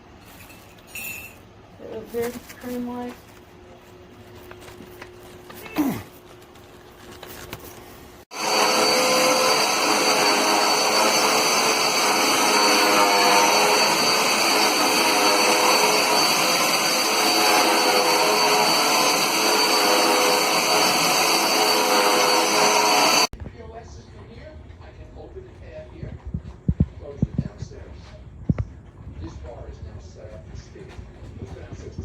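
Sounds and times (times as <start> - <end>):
vacuum cleaner running: 8.2 - 23.3.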